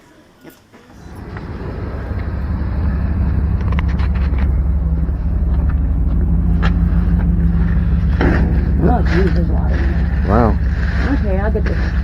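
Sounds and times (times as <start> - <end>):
vehicle engine humming: 0.9 - 12.0.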